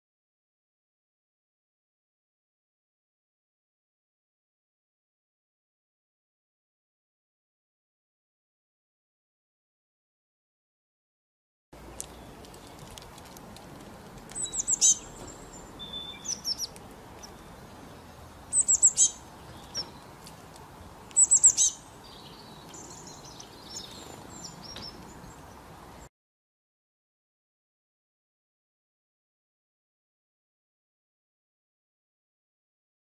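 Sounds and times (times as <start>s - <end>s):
songbird singing high notes: 14.4s - 20.0s, 21.1s - 25.3s.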